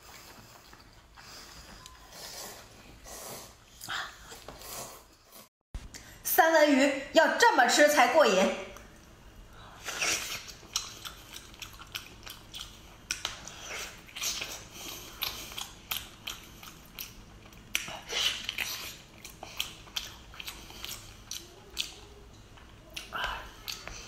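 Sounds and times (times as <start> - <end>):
wet chewing mouth sounds: 0.0 - 3.2, 9.8 - 24.0.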